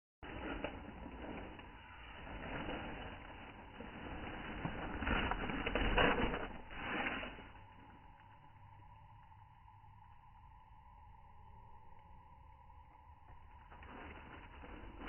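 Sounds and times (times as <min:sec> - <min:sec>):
rustling crackling noise: 0:00.2 - 0:08.0, 0:13.3 - 0:15.0
faint steady hum: 0:00.2 - 0:15.0.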